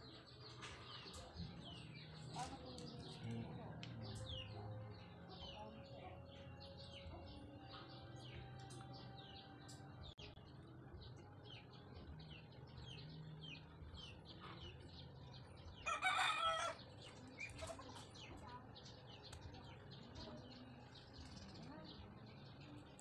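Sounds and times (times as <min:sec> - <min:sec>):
small birds chirping: 0:00.0 - 0:23.0
rooster crowing: 0:15.8 - 0:16.8.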